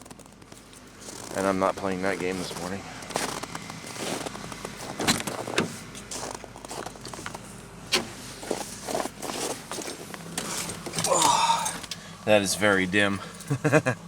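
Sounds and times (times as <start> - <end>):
footsteps: 0.0 - 10.9
car door knocks and clicks: 4.9 - 5.8.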